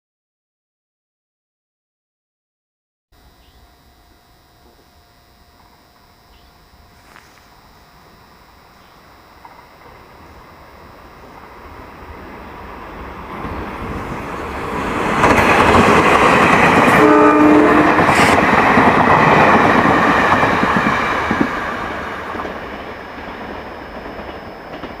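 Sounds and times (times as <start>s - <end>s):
train wheels rumbling on rails: 9.4s - 25.0s
train horn blast: 16.8s - 18.4s.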